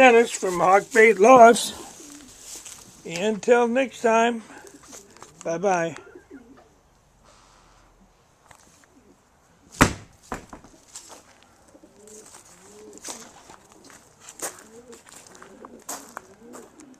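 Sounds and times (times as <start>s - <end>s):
pigeons cooing: 1.3s - 2.6s, 4.4s - 6.9s, 8.8s - 9.2s, 11.5s - 16.9s
sharp knock: 9.8s - 10.7s.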